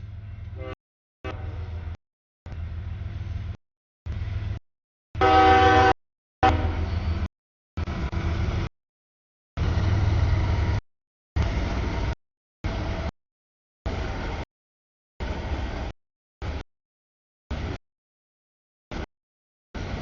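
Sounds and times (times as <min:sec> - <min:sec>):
freight train rumbling past: 0:00.0 - 0:04.6, 0:05.2 - 0:08.7, 0:09.6 - 0:10.8, 0:11.4 - 0:13.1, 0:13.9 - 0:14.5, 0:15.2 - 0:16.6, 0:17.5 - 0:17.8, 0:19.8 - 0:20.0
locomotive air horn: 0:00.6 - 0:01.8, 0:05.2 - 0:07.2.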